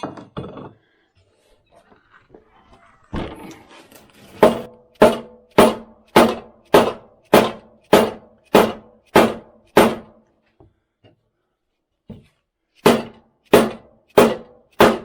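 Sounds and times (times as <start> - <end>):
hammer striking metal: 4.4 - 10.2, 12.8 - 15.0.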